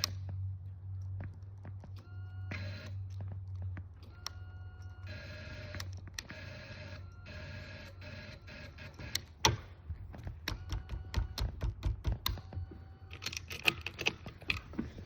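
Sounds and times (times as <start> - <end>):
steady low hum: 0.0 - 15.0
sharp clicks and knocks: 9.0 - 15.0.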